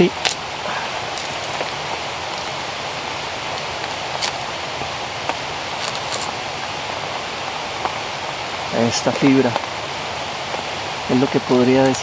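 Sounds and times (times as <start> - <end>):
rushing water hiss: 0.0 - 12.0.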